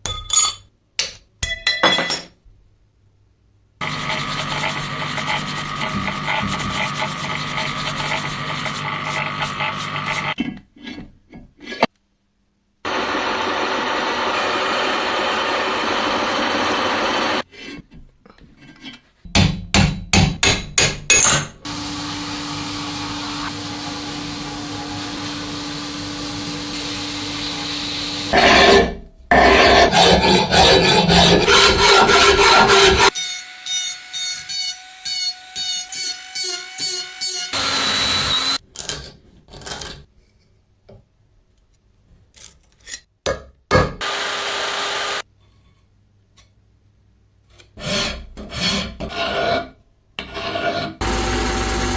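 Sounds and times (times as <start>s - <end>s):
loud rasping and scraping: 3.8s - 10.4s, 12.9s - 17.5s, 21.6s - 38.6s, 47.8s - 51.9s
tool running steadily: 3.8s - 10.4s, 12.9s - 17.4s, 21.6s - 28.4s, 30.0s - 38.6s, 44.0s - 45.2s, 51.0s - 51.9s
hammer strikes on metal: 19.3s - 21.6s.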